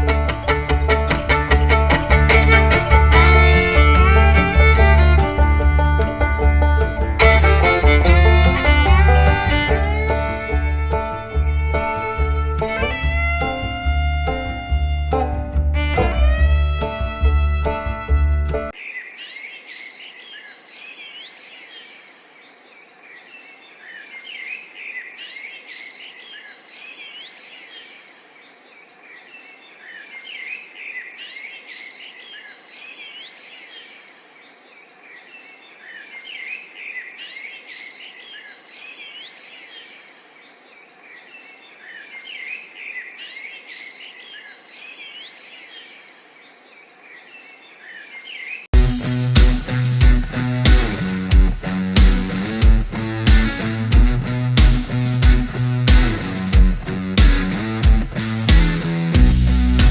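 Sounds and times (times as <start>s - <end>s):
small birds chirping: 18.7s - 48.8s.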